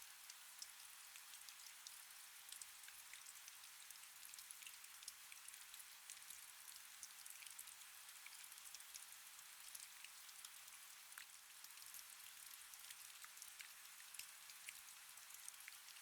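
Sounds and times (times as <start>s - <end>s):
faint steady rain: 0.0s - 16.0s.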